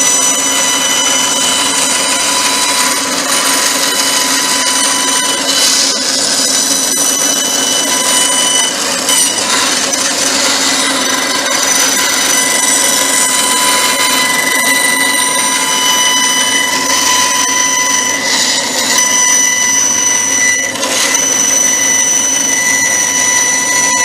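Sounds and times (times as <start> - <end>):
power saw whining: 0.0 - 24.0.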